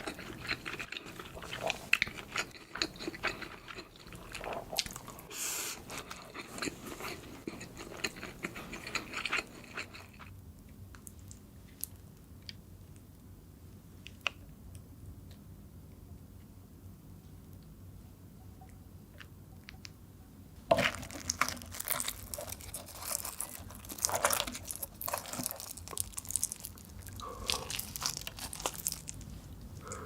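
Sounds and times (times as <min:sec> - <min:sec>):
person chewing and biting food: 0:00.0 - 0:05.2, 0:05.8 - 0:10.3, 0:20.7 - 0:30.0.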